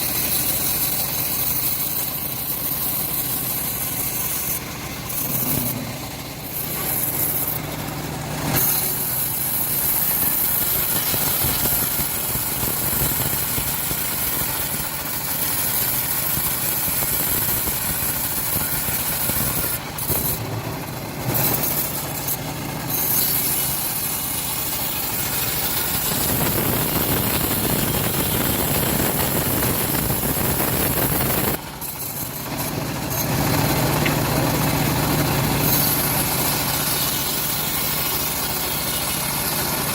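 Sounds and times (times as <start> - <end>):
bandsaw cutting log: 0.0 - 39.9
low engine hum: 4.5 - 8.8.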